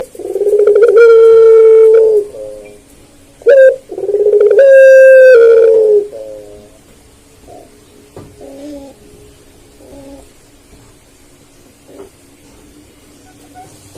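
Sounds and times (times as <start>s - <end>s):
turtle dove cooing: 0.0s - 2.8s, 3.4s - 10.4s.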